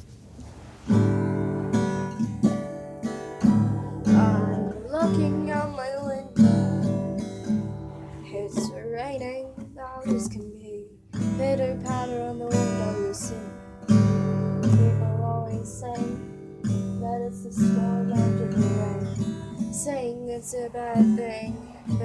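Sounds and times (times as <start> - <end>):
acoustic guitar strumming chords: 0.5 - 22.0
person singing wordless melody: 3.7 - 6.7, 8.2 - 13.6, 14.6 - 16.3, 17.0 - 22.0.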